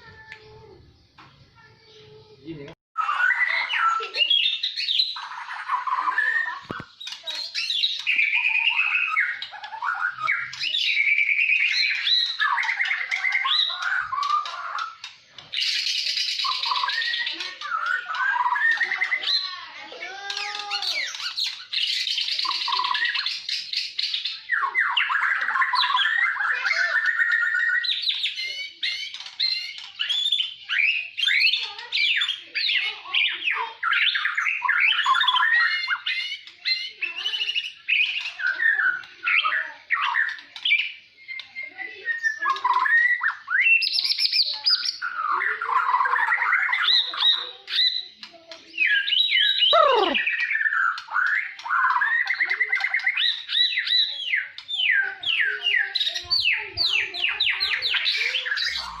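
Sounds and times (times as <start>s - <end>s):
songbird singing varied whistles: 48.9s - 55.5s.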